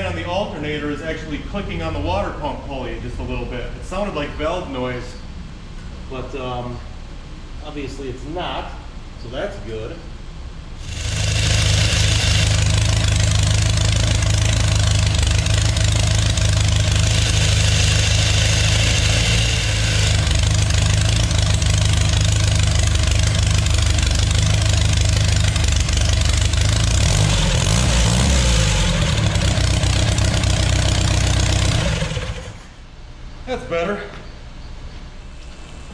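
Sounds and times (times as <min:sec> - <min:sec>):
car engine idling: 0:10.8 - 0:32.8.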